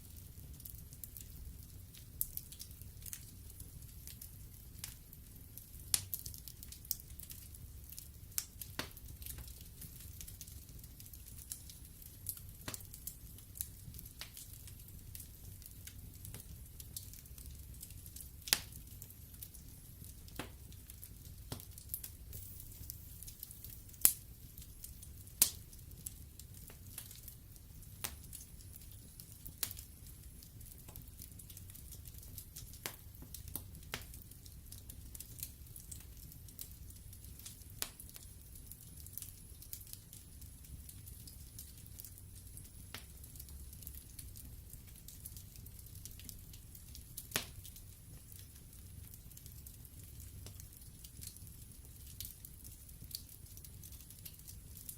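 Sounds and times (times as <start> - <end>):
wood fire crackling: 0.0 - 54.9
low steady rumble: 22.1 - 26.4.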